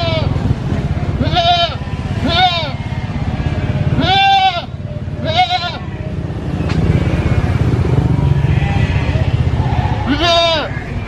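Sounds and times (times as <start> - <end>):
goat bleating: 0.0 - 0.4, 1.1 - 6.2, 8.4 - 9.3, 10.0 - 10.8
steady low rumble: 0.0 - 11.0.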